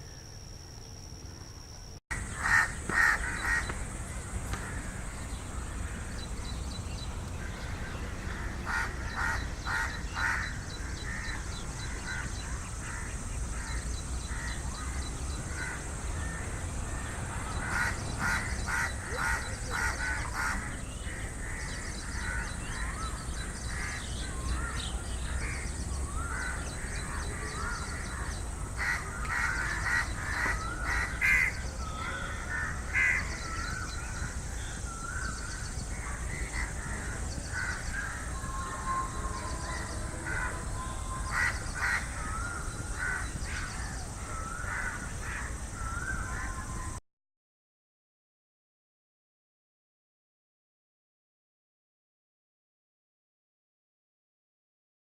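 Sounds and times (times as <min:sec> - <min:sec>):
crows cawing: 0:02.2 - 0:05.1, 0:08.3 - 0:34.3, 0:35.0 - 0:38.3, 0:41.3 - 0:46.2.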